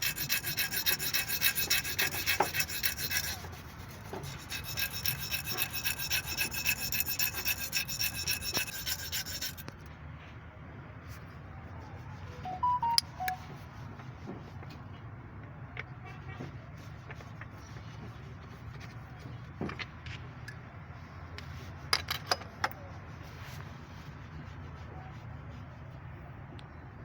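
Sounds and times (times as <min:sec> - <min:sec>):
hand tools clicking and knocking: 0:00.0 - 0:03.5, 0:04.1 - 0:09.7
short high tones: 0:12.5 - 0:13.5.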